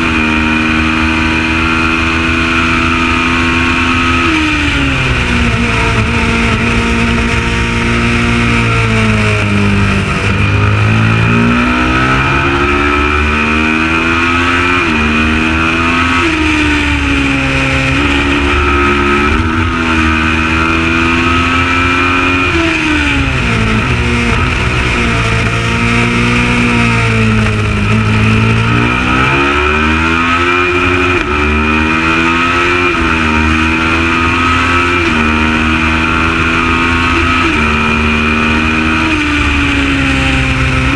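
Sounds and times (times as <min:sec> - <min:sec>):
racing motorcycle engine revving: 0:00.0 - 0:40.9.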